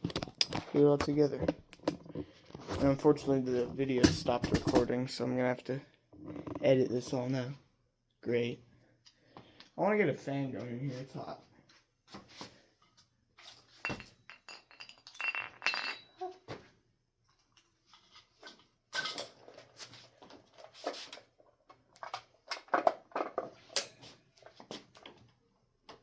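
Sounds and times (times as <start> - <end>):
hard objects clinking and knocking: 13.8 - 16.3.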